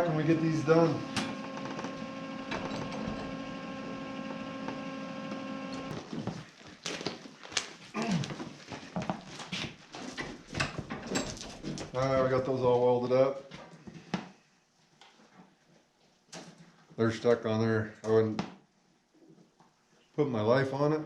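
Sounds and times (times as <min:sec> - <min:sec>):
welder electrical hum: 0:00.0 - 0:06.1.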